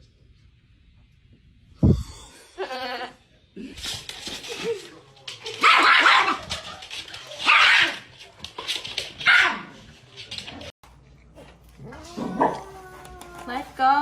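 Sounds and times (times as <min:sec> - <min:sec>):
dog barking loudly: 0:05.6 - 0:06.5.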